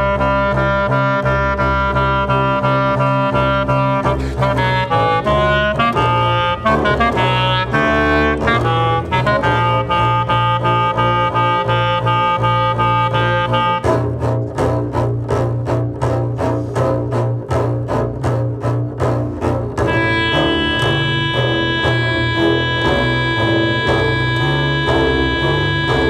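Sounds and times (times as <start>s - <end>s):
clarinet playing: 0.0s - 15.1s, 19.4s - 26.0s
double bass sustained low note: 0.0s - 26.0s.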